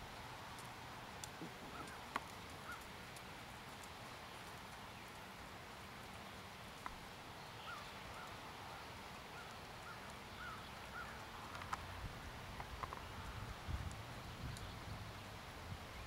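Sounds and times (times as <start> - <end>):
sharp clicks: 11.2 - 11.8.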